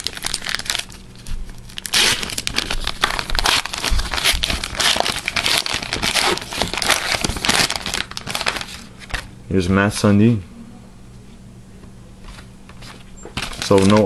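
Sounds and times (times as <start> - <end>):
foil pack tearing and crinkling: 0.0 - 9.3, 13.4 - 14.0.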